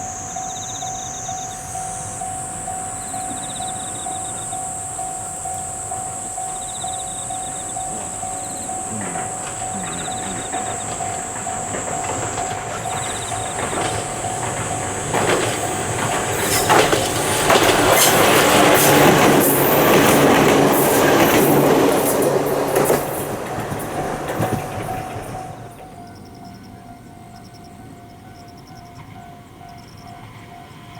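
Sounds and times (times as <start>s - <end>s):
electric train passing: 0.0s - 30.9s
wheels clacking over rail joints: 1.6s - 26.4s.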